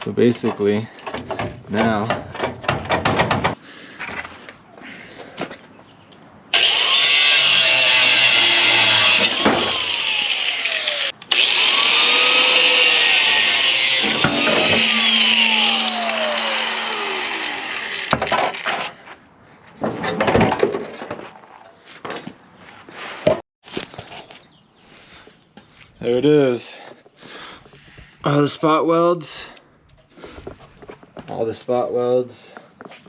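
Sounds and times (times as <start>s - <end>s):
power tool cutting sheet metal: 6.6s - 18.8s.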